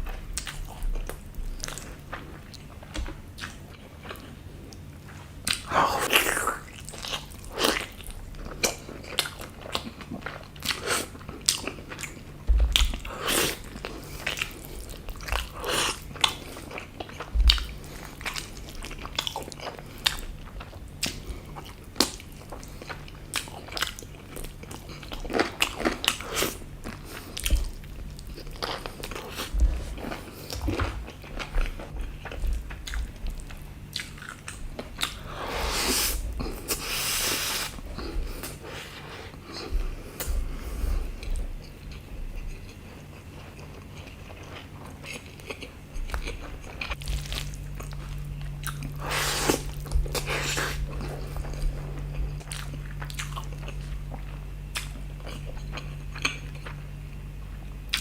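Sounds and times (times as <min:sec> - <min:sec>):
person chewing food: 0:00.0 - 0:58.0
dull low thumps: 0:17.3 - 0:17.8, 0:29.5 - 0:33.4, 0:39.6 - 0:41.6
crunching: 0:44.0 - 0:56.8.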